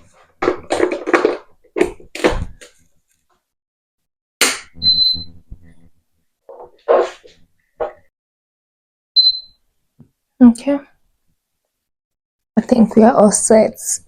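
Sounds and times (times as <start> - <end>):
short high electronic beep: 4.8 - 5.4, 9.2 - 9.6.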